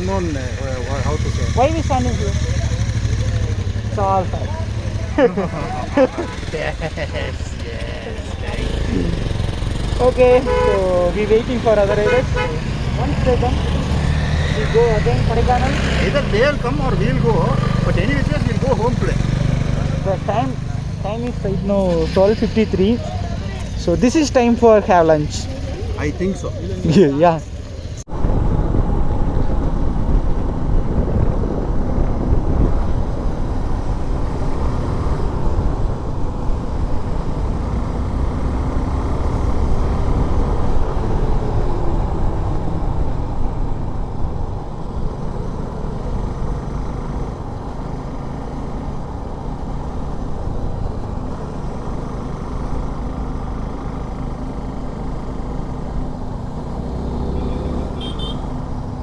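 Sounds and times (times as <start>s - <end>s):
motorcycle engine running: 0.0s - 59.0s
wind rush: 28.0s - 46.5s.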